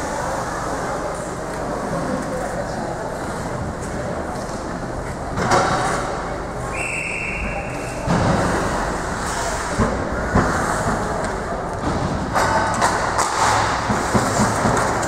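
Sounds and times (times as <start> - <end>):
rink crowd hubbub: 0.0 - 15.0
referee whistle blast: 6.7 - 7.7
knocks against rink boards: 9.8 - 15.0.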